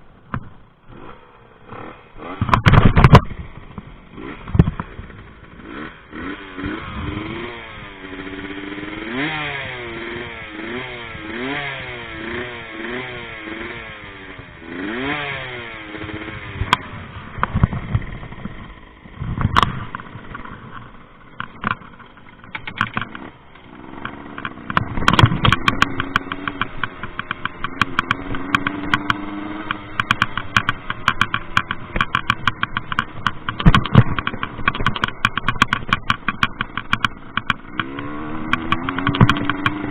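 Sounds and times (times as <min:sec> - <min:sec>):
moped engine revving: 0:00.0 - 0:39.9
rapid clatter of knocks and rattles: 0:16.6 - 0:39.9.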